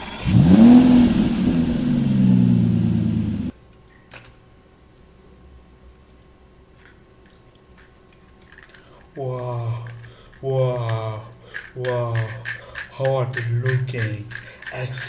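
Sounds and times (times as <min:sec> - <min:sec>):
toy sports car engine revving: 0:00.0 - 0:03.5
faint clicks: 0:06.8 - 0:15.0.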